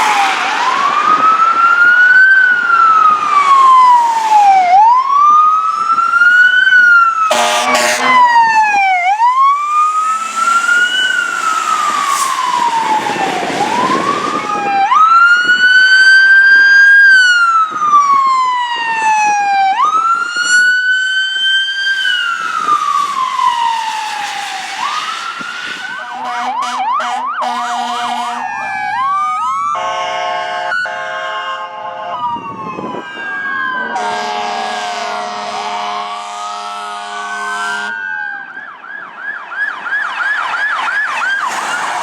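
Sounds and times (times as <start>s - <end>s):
fire engine siren: 0.0s - 42.0s
air horn blast: 7.2s - 9.3s, 9.9s - 12.7s, 25.9s - 28.6s, 29.8s - 32.2s, 33.8s - 38.0s.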